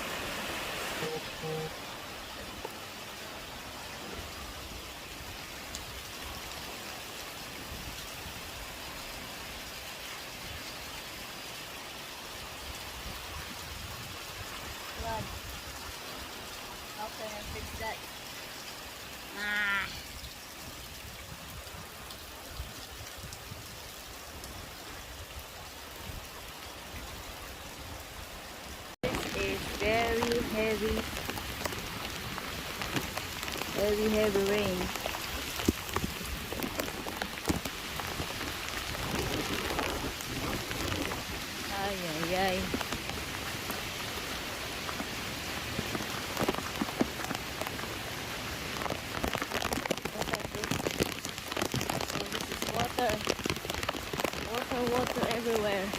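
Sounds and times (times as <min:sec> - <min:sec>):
heavy rain falling: 0:00.0 - 0:55.9
wind buffeting microphone: 0:34.6 - 0:43.2.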